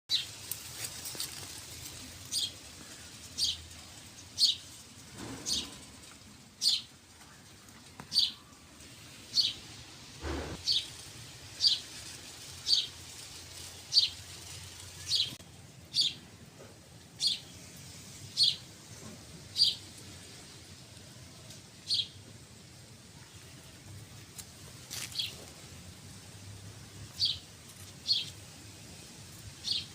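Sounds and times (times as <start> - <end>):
bird chirping: 10.2 - 10.9, 15.0 - 16.2.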